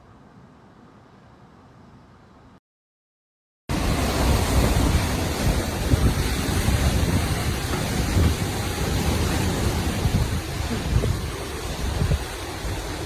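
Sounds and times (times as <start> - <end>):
wind and surf rushing: 3.7 - 13.0
wind gusting against microphone: 3.7 - 13.0.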